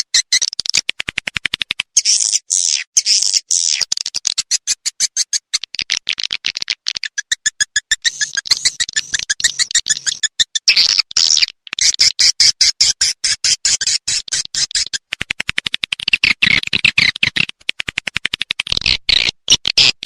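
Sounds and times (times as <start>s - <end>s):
fast sharp bird clicks: 0.0s - 20.0s
high twittering chirps: 7.0s - 12.0s.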